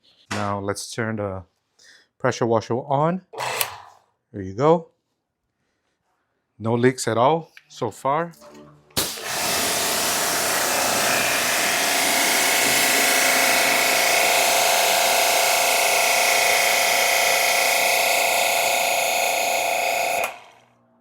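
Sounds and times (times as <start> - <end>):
water jet hissing: 9.0 - 16.2
pressure washer motor whine: 9.0 - 20.6.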